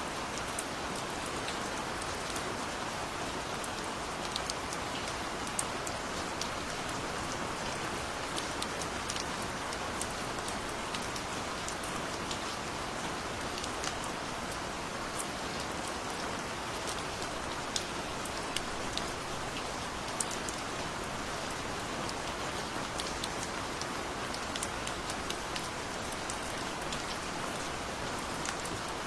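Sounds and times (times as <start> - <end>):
steady rain hiss: 0.0 - 29.0
raindrops ticking on a surface: 0.1 - 29.0.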